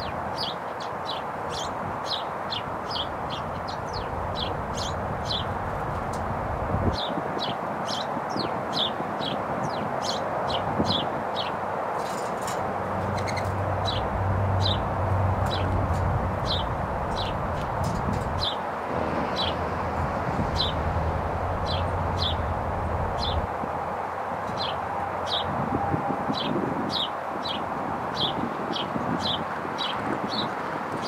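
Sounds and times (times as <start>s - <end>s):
bird chip calls: 13.1s - 14.8s.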